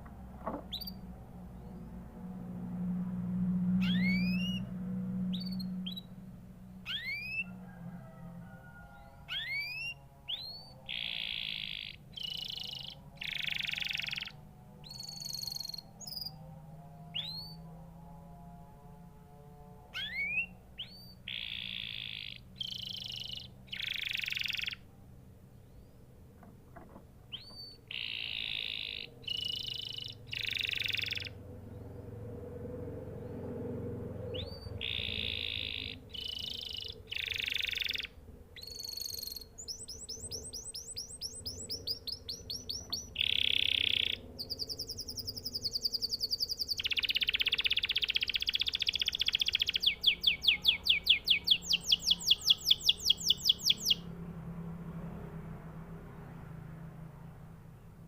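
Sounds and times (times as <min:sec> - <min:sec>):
canary singing trills: 0:00.0 - 0:02.3, 0:03.6 - 0:17.7, 0:19.7 - 0:24.9, 0:27.2 - 0:32.1, 0:33.0 - 0:54.2.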